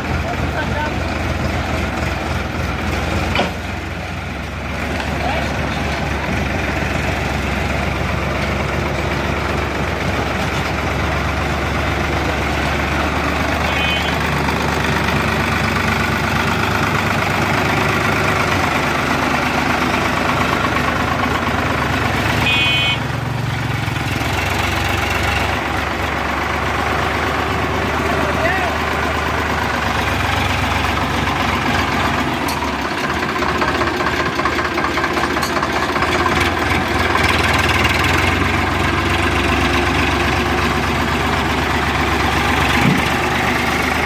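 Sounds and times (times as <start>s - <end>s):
heavy machine engine running: 0.0s - 44.0s.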